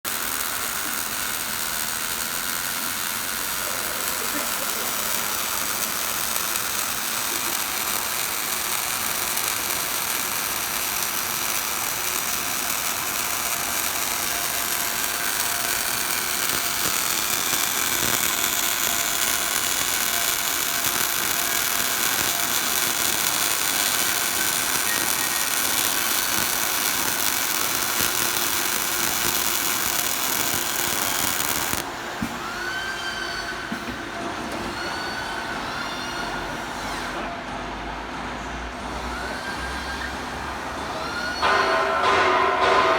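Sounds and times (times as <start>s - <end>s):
welding machine hiss and crackle: 0.0s - 37.3s, 38.9s - 42.9s
short squeaks: 32.4s - 37.2s.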